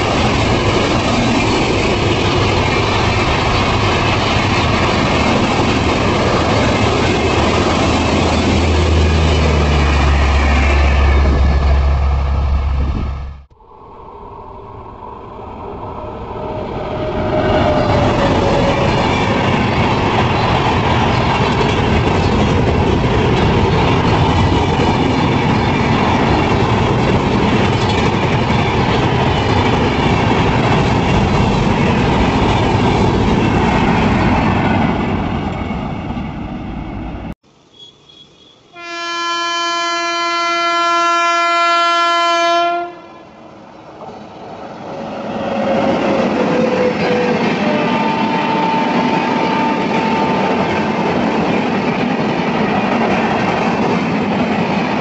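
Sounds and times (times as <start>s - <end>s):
train passing with wheel clatter: 0.0s - 37.4s, 38.7s - 55.0s
locomotive horn blast: 38.7s - 43.3s, 47.1s - 50.6s.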